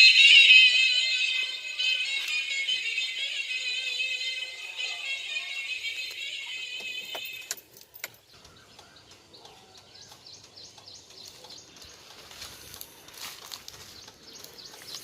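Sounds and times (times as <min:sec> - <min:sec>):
small birds chirping: 0:05.5 - 0:15.0.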